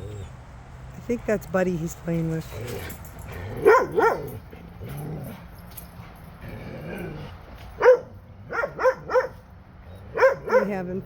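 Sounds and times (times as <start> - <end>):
dog barking: 3.6 - 4.4, 7.8 - 9.4, 10.2 - 10.8.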